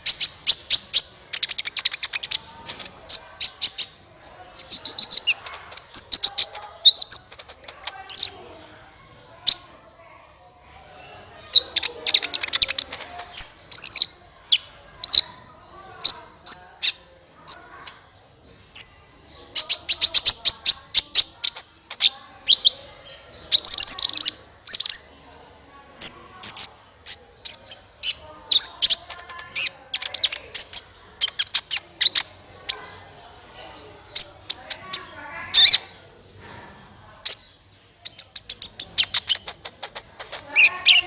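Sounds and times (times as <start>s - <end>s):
sunbird chirps and trills: 0.0s - 10.4s, 11.0s - 36.6s, 37.2s - 41.0s.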